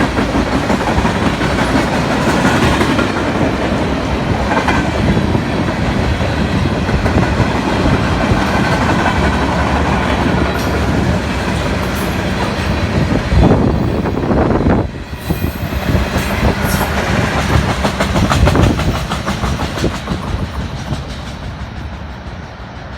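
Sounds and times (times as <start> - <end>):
wind rush: 0.0 - 22.9
wheels clacking over rail joints: 15.5 - 22.9.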